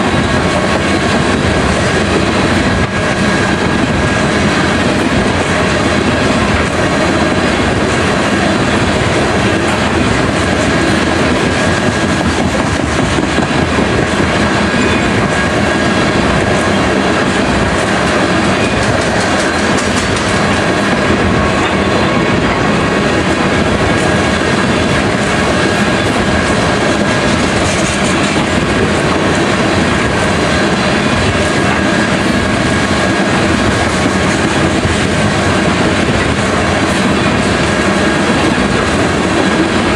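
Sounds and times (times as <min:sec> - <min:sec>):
freight train wheels on rails: 0:00.0 - 0:39.9.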